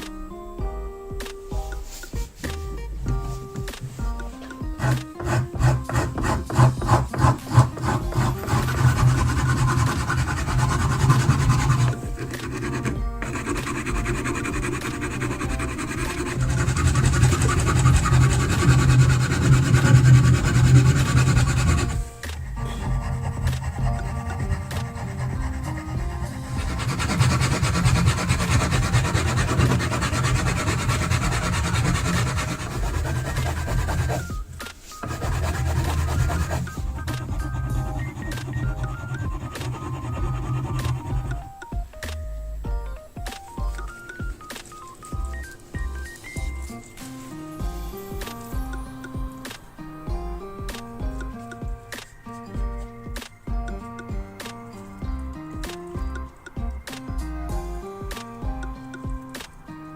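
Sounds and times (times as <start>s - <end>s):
background music: 0.0s - 59.9s
abrasive rasping on knife: 4.8s - 41.5s.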